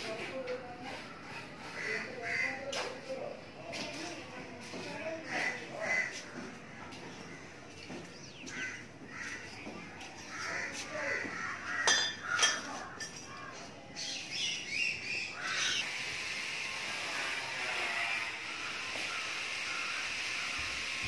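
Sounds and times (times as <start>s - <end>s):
faint background voices: 0.0s - 14.7s
harsh bird calls: 5.2s - 16.0s, 17.8s - 21.0s.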